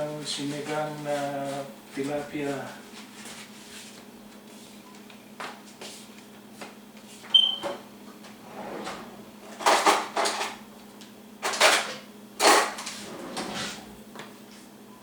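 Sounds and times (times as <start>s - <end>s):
rustling and scraping: 12.8s - 14.0s.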